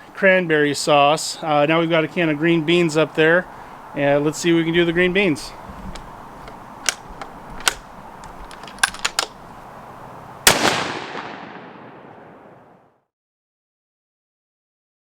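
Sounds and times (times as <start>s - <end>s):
rifle shot with echo: 10.4s - 12.8s.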